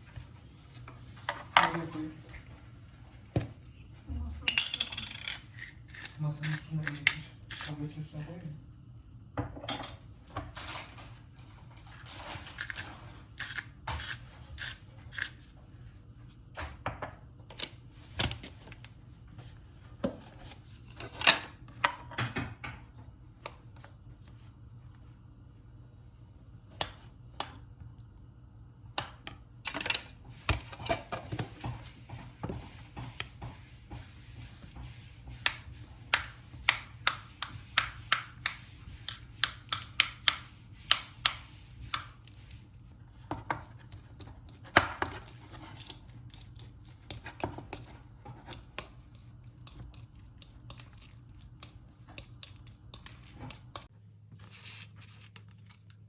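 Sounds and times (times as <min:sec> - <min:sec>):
knife chopping on cutting board: 0:34.8 - 0:42.1.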